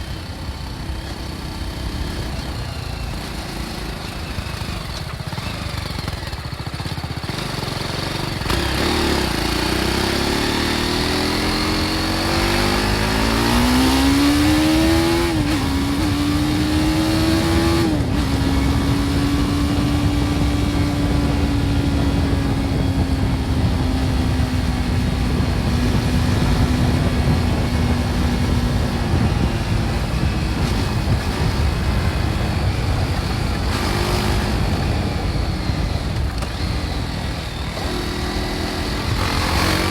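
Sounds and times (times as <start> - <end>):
motorcycle engine accelerating: 0.0 - 39.9
wind rushing over microphone: 7.2 - 39.9.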